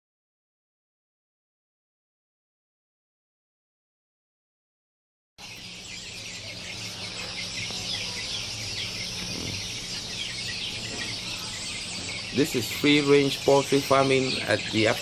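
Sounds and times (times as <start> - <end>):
faint low hum: 5.4 - 15.0
small birds chirping: 5.4 - 15.0.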